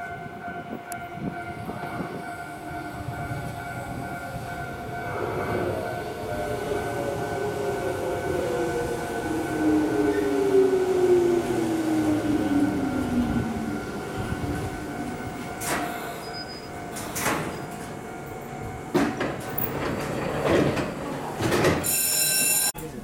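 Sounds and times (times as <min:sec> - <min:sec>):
train humming: 0:00.0 - 0:22.6
electric train braking whine: 0:04.3 - 0:19.0
train sliding doors opening: 0:04.4 - 0:22.7.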